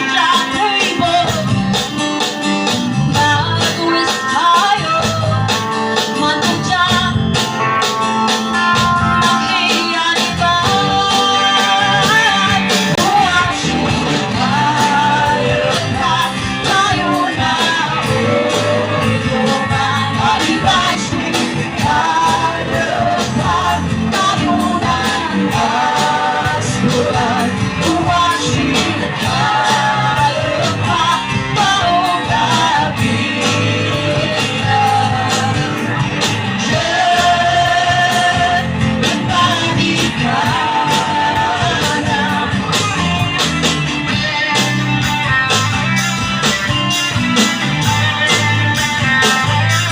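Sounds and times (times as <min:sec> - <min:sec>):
live band playing: 0:00.0 - 0:49.9.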